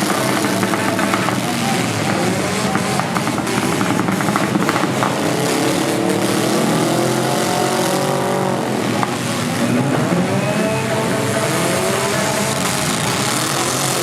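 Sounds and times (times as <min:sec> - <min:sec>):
sharp knocks: 0:00.0 - 0:06.6
car engines revving: 0:00.0 - 0:14.0.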